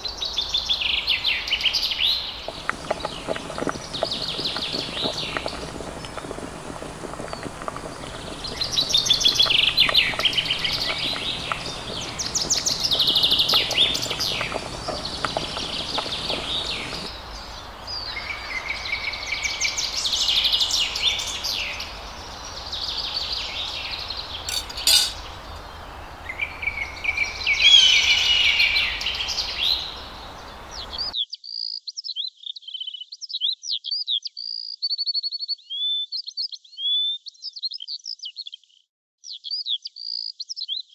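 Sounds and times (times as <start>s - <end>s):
small birds chirping and trilling: 0.1s - 40.9s
background hiss: 2.2s - 31.1s.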